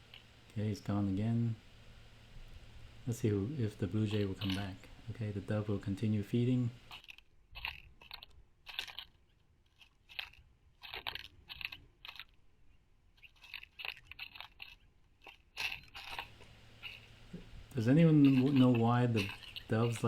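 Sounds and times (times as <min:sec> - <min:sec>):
bird pecking seeds: 0:13.2 - 0:20.0.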